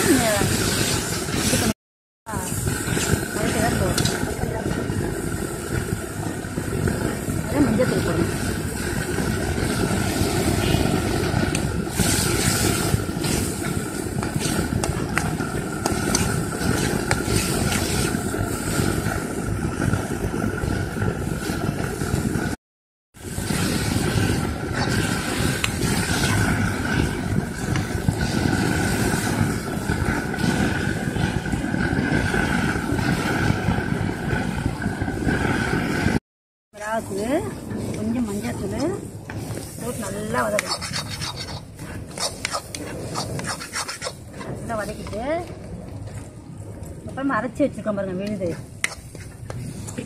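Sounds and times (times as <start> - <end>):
vegetables frying in oil: 23.2 - 33.8
metal spatula scraping a pan: 39.8 - 45.1.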